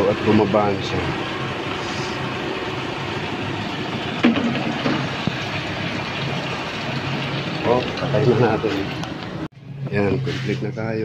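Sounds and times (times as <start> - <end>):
coolant draining: 0.0 - 9.5.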